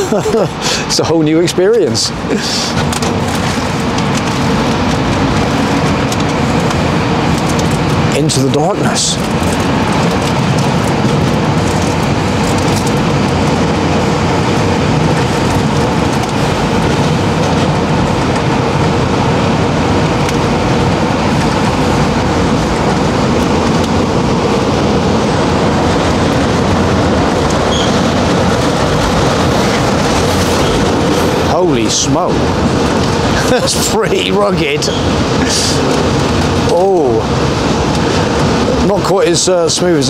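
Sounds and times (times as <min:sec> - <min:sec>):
train rumbling through tunnel: 0:00.0 - 0:40.0.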